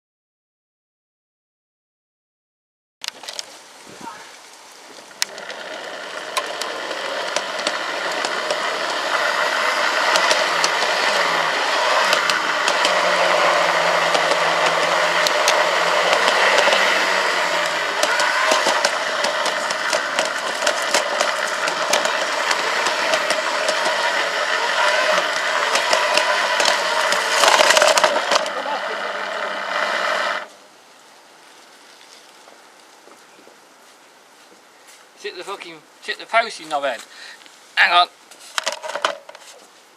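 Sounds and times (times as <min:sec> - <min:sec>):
wheels clicking on rails: 0:05.0 - 0:30.6
model train running on track: 0:05.2 - 0:30.5.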